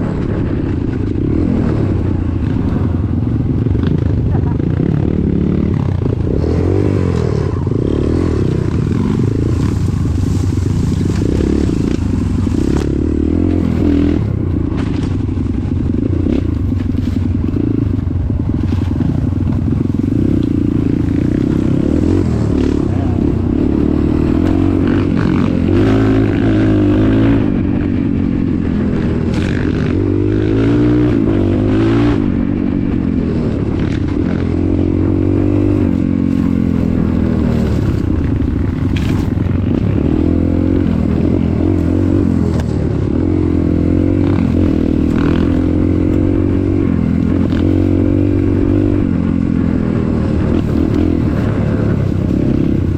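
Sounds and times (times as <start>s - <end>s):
vehicle engine running: 0.0s - 52.9s.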